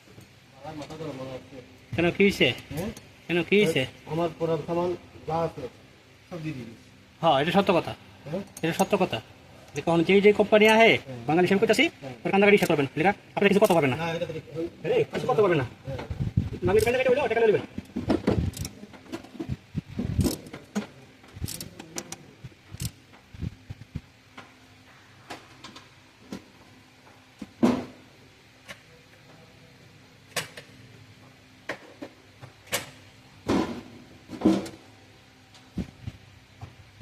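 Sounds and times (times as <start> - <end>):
faint steady hum: 0.0 - 37.0
tools and metal parts clicking: 8.4 - 9.1, 12.6 - 12.8, 13.5 - 14.0, 16.7 - 17.1, 18.4 - 19.3, 20.1 - 23.0.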